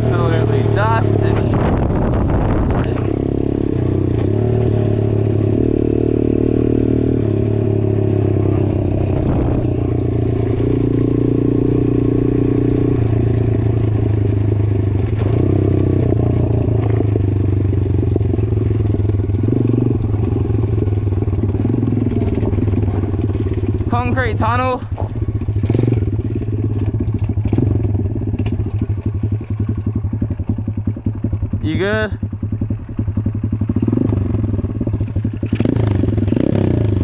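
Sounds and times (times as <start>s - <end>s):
motorcycle engine revving: 0.0s - 37.0s
clatter and scraping: 1.2s - 3.2s, 8.4s - 9.9s, 13.8s - 17.2s, 21.2s - 24.2s, 24.8s - 31.0s.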